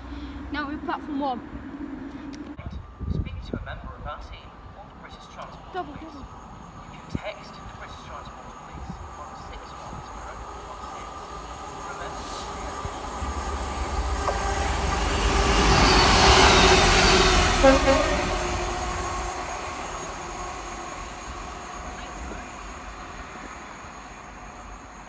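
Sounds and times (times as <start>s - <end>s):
train rumble: 0.0s - 25.0s
train horn toot: 11.8s - 22.8s.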